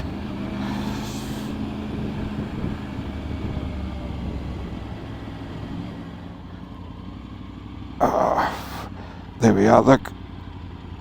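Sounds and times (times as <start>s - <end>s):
wind noise: 0.0s - 4.8s
motorcycle engine: 0.0s - 11.0s.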